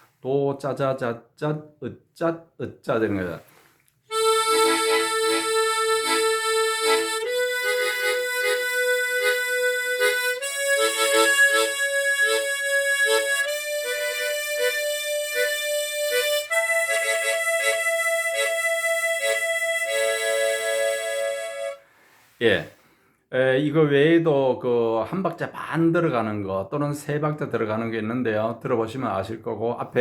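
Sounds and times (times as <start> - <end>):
harmonica playing: 4.1 - 21.9.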